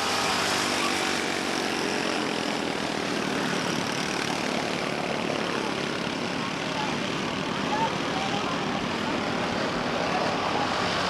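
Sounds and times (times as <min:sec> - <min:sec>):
race car engines at full throttle: 0:00.0 - 0:11.0.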